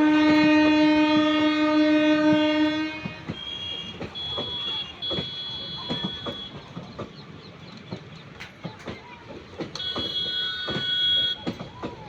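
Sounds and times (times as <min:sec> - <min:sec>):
high-pitched train horn: 0:00.0 - 0:06.6, 0:09.8 - 0:11.5
train wheels knocking on rails: 0:00.0 - 0:12.0.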